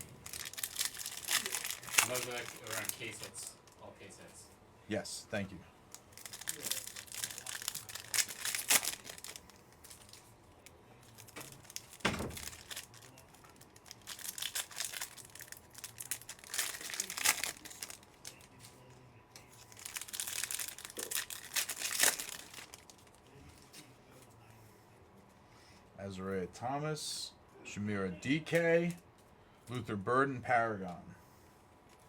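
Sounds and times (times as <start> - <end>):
foil wrappers tearing and crinkling: 0.0 - 3.8, 5.9 - 10.3, 11.0 - 18.6, 19.6 - 23.3.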